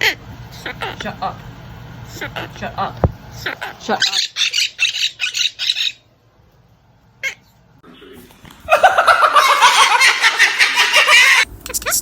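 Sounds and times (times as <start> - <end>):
parrot squawking: 0.0 - 1.2, 2.0 - 6.1, 7.2 - 7.5, 9.4 - 12.0.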